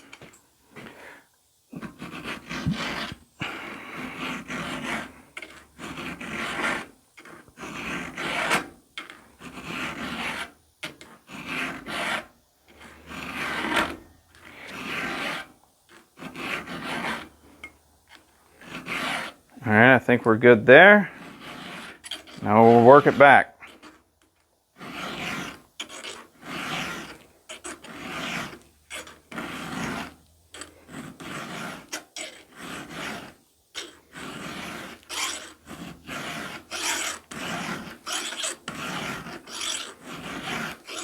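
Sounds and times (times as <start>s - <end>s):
file rasping on chain tooth: 1.8s - 19.5s, 21.0s - 24.0s, 24.8s - 41.0s.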